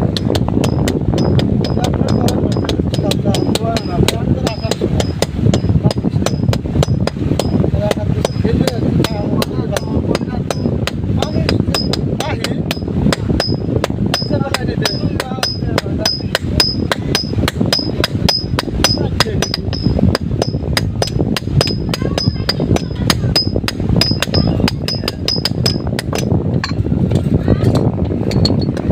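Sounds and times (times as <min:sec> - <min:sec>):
hammer striking metal: 0:00.1 - 0:26.8.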